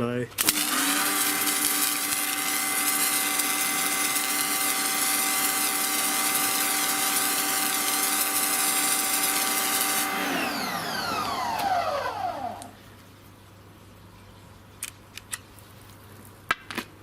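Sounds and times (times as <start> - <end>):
pressure washer motor whine: 0.4 - 12.8.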